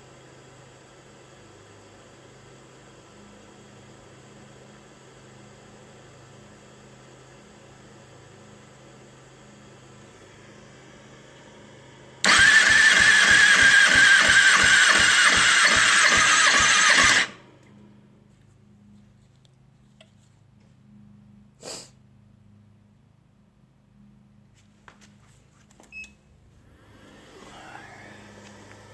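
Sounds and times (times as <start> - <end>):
engine cranking on starter: 10.6 - 17.8, 26.7 - 28.9.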